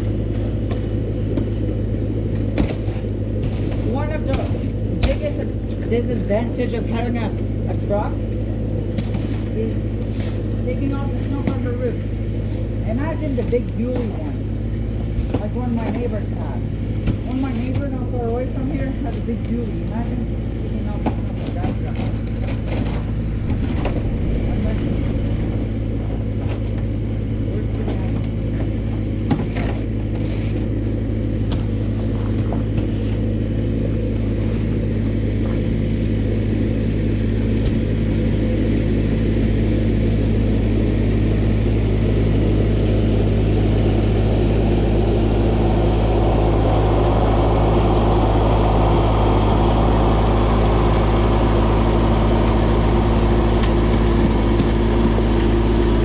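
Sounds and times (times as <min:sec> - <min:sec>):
vehicle engine idling: 0:00.0 - 0:56.0
rushing noise: 0:22.6 - 0:28.6, 0:44.8 - 0:54.5.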